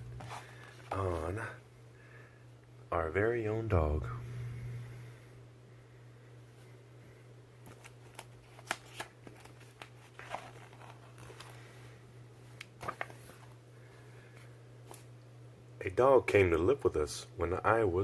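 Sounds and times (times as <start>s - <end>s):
low hum: 0.0s - 7.5s
paper pages rustling: 7.6s - 11.8s, 12.5s - 13.6s.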